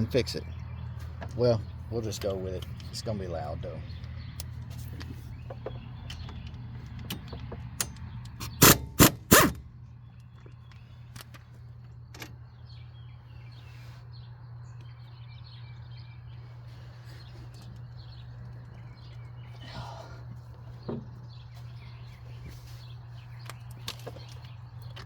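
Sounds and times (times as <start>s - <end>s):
impact wrench bursts: 8.4s - 9.7s.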